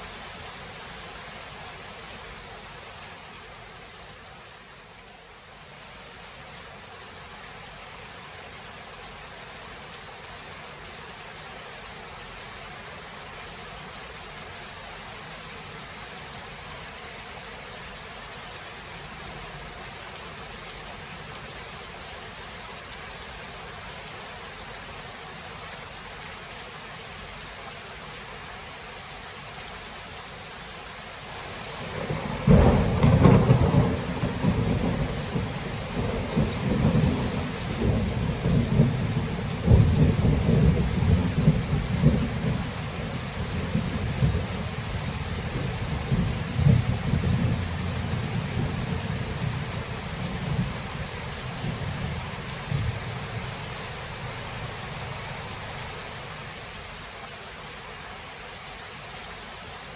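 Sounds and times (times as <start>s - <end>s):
steady rain: 0.0s - 59.9s
thunder rumbling: 31.4s - 56.0s.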